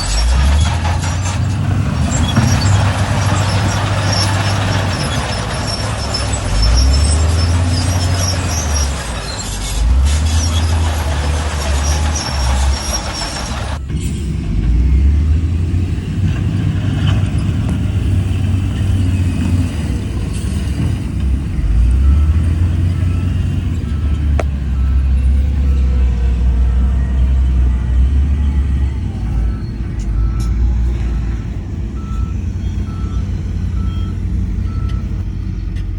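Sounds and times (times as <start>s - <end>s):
heavy diesel machinery engine: 0.0s - 35.9s.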